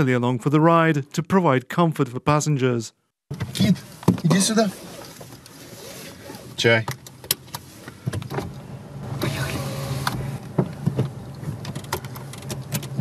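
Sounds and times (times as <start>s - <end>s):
clicks and knocks in car: 6.8s - 8.6s, 10.4s - 13.0s.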